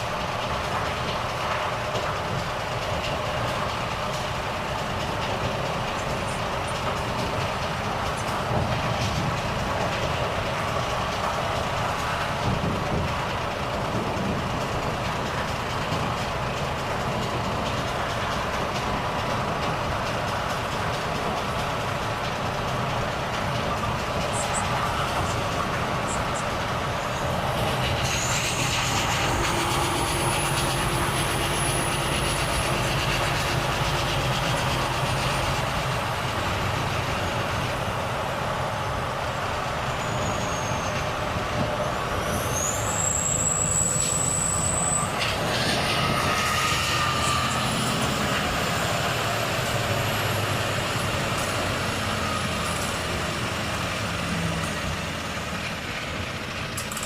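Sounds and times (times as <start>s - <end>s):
road noise: 0.0s - 57.0s
truck diesel engine running: 0.0s - 57.0s
thin high whistles: 26.0s - 33.3s, 39.9s - 41.2s, 42.2s - 47.8s.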